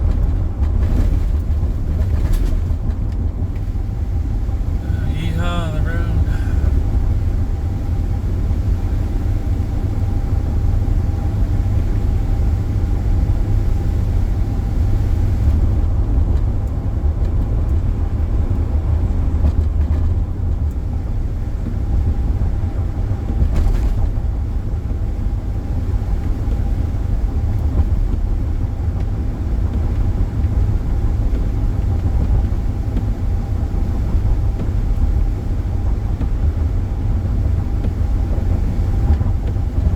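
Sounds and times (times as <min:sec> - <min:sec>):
car cabin road noise: 0:00.0 - 0:39.9
faint steady hum: 0:03.5 - 0:12.4.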